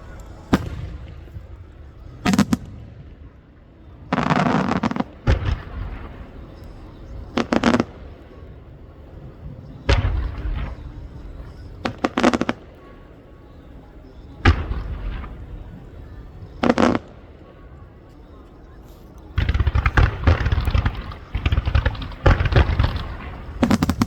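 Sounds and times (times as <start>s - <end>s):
sharp firework reports: 0.0s - 8.5s, 19.4s - 24.0s
deep firework booms: 0.4s - 3.2s, 4.1s - 6.3s, 19.4s - 24.0s.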